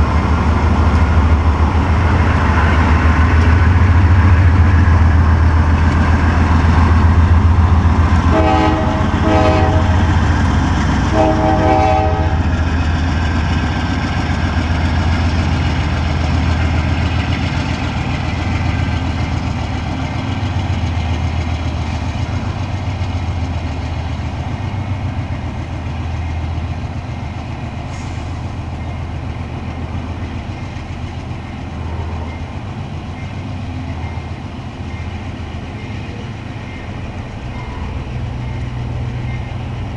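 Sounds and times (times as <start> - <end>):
locomotive engine drone: 0.0 - 39.9
rolling train rumble: 0.0 - 39.9
train horn blasts: 8.3 - 10.2, 11.1 - 12.5.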